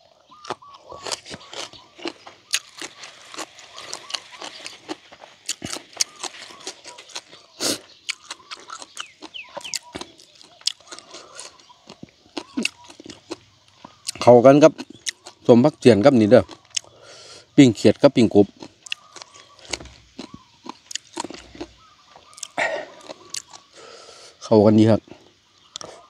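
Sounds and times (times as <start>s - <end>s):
chewing and crunching: 0.0s - 24.4s, 25.0s - 26.0s
wet mouth clicks: 22.3s - 23.7s.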